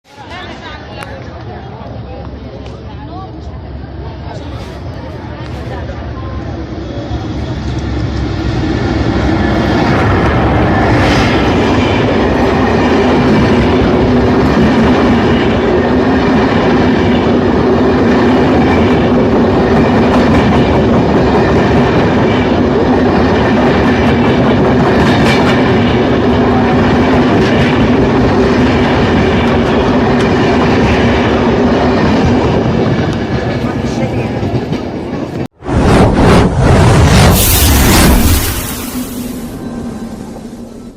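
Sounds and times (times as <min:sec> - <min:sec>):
train wheels rushing on rail: 0:00.1 - 0:40.9
low hum: 0:35.7 - 0:40.9.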